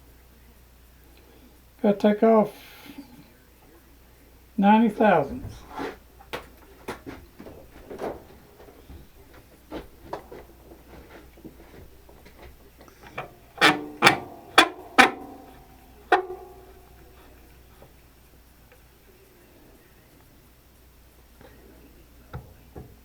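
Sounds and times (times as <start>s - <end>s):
metal tools clicking and tapping: 6.3s - 18.0s
loud ringing metal clanks: 9.9s - 18.1s.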